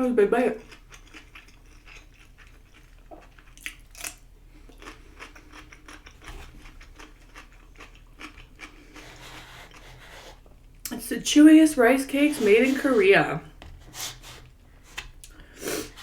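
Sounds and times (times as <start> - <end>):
person chewing: 0.6 - 10.6.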